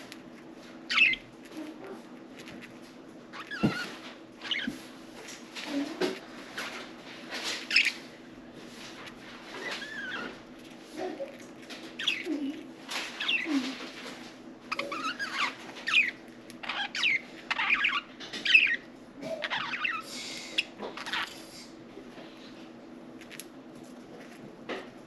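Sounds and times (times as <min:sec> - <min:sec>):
budgerigars chirping: 0:00.9 - 0:01.2, 0:14.7 - 0:18.8, 0:19.4 - 0:20.0.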